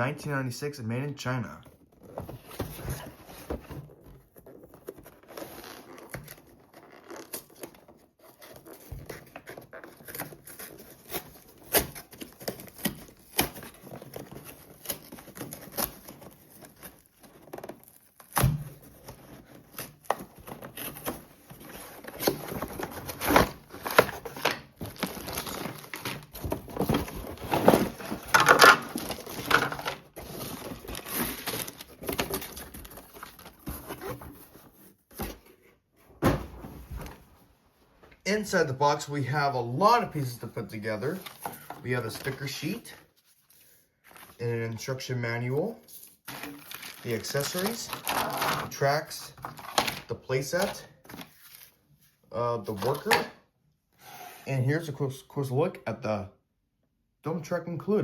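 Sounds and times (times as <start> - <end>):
toy packaging rustling and crinkling: 8.2 - 34.8, 45.9 - 51.8, 52.7 - 53.3.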